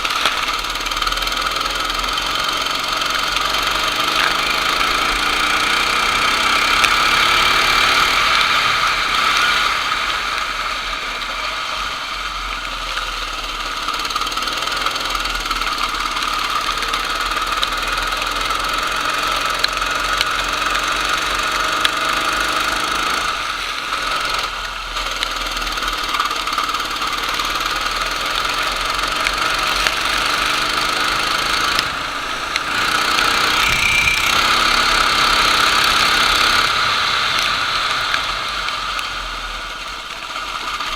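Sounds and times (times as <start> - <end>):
kart engine revving: 0.0 - 40.9.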